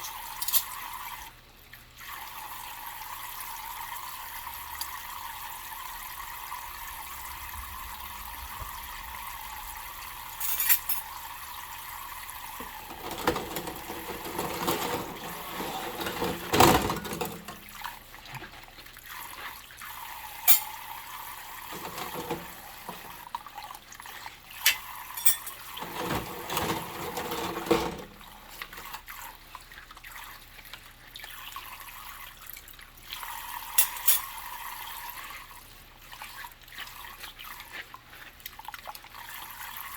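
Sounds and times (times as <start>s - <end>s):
tap water running into sink: 2.0s - 18.6s, 19.9s - 29.6s
dishes clinking and knocking: 12.6s - 17.8s, 21.7s - 23.3s, 24.7s - 29.0s.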